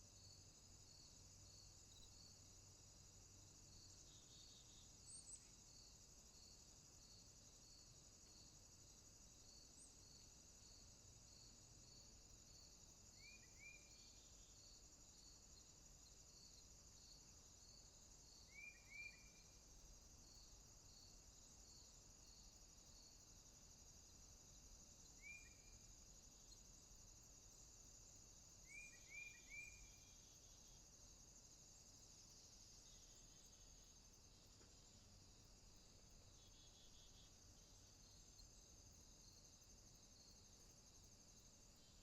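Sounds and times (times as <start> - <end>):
high insect chorus: 0.0 - 42.0
pulsed insect call: 11.9 - 42.0.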